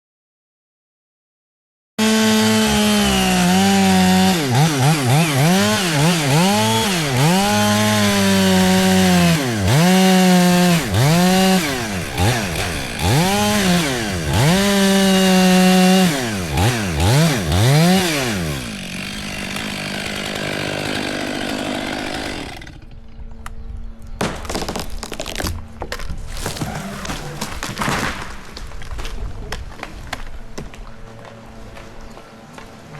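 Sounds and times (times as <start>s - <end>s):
chainsaw cutting tree trunk: 2.0s - 22.9s, 24.2s - 28.6s
sharp cracks and knocks: 23.4s - 30.8s.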